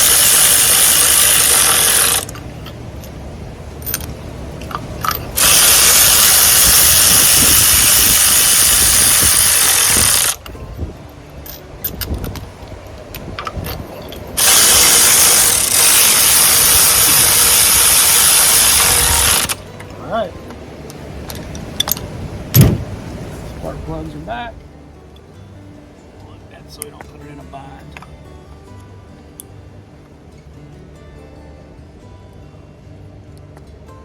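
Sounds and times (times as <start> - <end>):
power tool running: 0.0 - 2.4, 5.0 - 10.4, 14.4 - 19.6.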